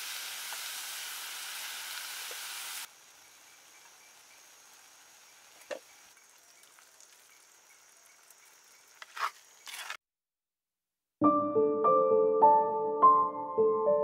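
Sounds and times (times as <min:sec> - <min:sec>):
vegetables sizzling in a pot: 0:00.0 - 0:09.6.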